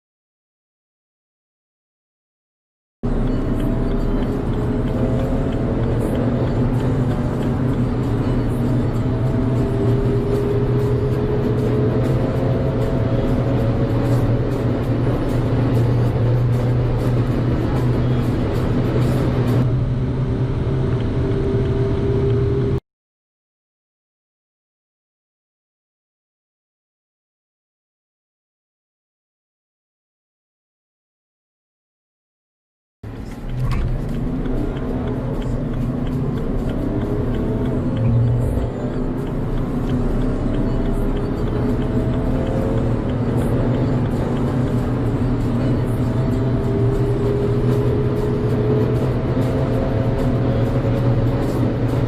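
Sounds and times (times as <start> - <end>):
car engine running high: 3.0 - 22.8, 33.0 - 52.0
road and wind noise: 3.0 - 22.8, 33.0 - 52.0.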